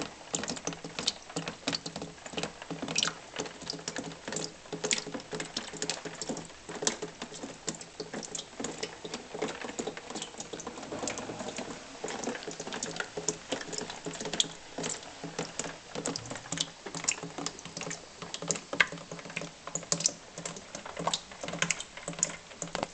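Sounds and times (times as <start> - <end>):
rain patter through window: 0.0 - 22.9
sharp drips and taps: 0.0 - 22.9.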